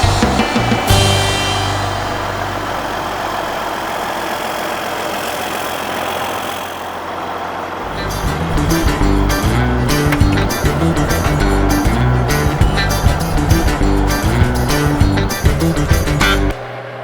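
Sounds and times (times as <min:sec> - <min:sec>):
background music: 0:00.0 - 0:03.6, 0:07.9 - 0:16.7
farm machinery engine running: 0:00.0 - 0:17.0.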